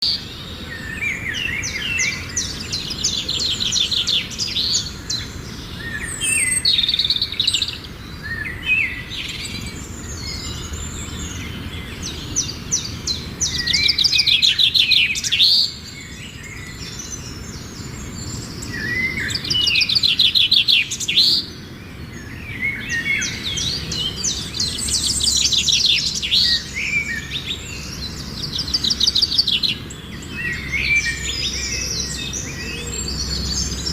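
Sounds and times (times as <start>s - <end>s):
songbirds singing trills: 0.0s - 33.9s.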